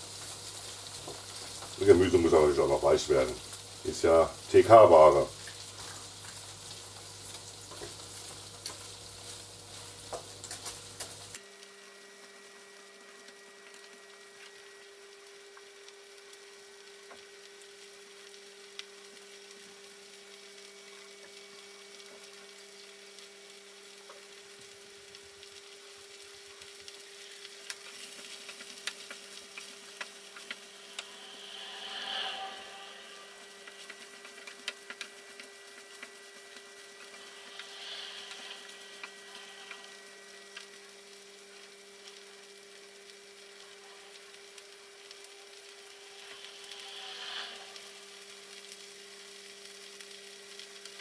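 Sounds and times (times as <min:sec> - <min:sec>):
food sizzling in a frying pan: 0:00.0 - 0:51.0
faint hum: 0:24.8 - 0:50.6.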